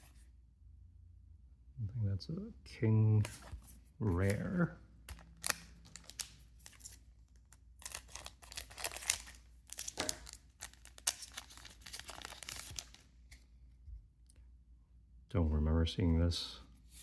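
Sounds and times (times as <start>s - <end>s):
foil wrapper crinkling and tearing: 4.2s - 13.1s.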